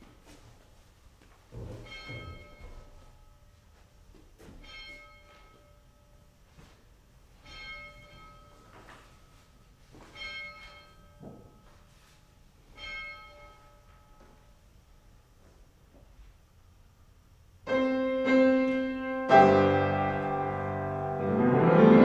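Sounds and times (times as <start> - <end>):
church bell tolling: 7.4 - 8.7, 10.2 - 11.2, 17.7 - 22.0.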